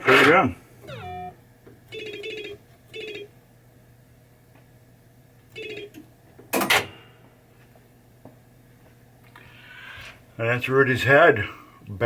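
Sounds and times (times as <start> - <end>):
buzzy electronic tones: 0.9 - 1.4.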